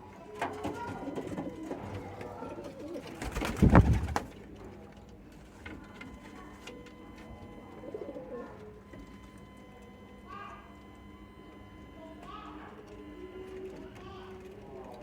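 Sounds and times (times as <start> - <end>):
pigeons cooing: 0.3 - 4.6, 7.4 - 8.6.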